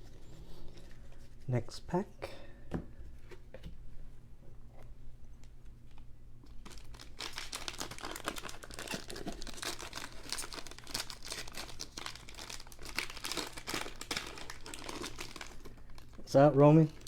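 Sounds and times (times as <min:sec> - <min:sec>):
foil wrapper crinkling: 0:05.9 - 0:17.0.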